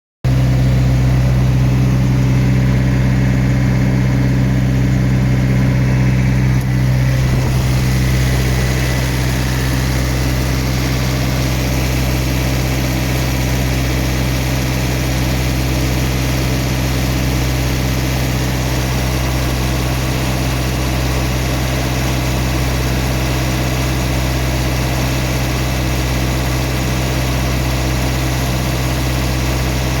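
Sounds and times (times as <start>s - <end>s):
diesel engine humming: 0.3s - 23.2s.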